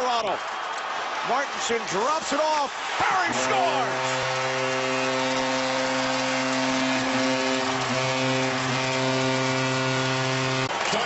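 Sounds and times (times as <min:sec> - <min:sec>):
crowd cheering: 0:00.0 - 0:11.0
goal horn long tone: 0:03.0 - 0:10.9.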